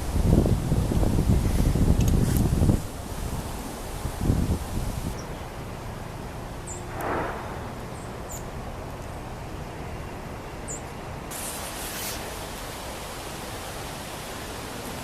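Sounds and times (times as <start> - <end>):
wind noise and rustling: 0.0 - 6.3.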